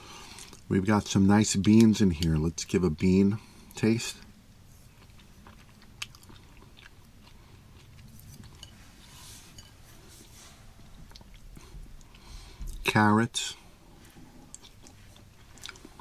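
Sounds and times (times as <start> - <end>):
person chewing: 0.2 - 0.7, 4.7 - 8.8, 11.0 - 12.8, 14.0 - 16.0.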